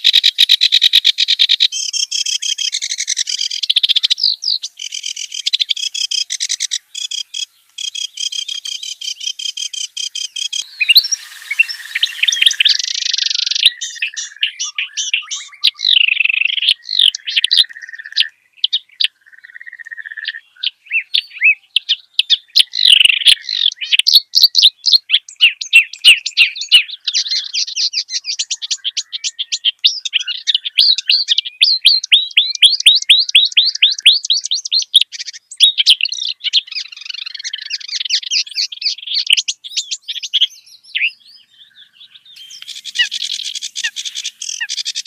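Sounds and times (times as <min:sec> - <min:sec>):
reed warbler singing: 0:00.0 - 0:45.0.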